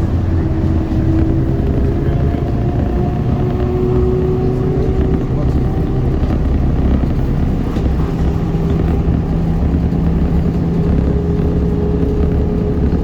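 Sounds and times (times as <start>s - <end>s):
bus rolling rumble: 0.0s - 13.0s.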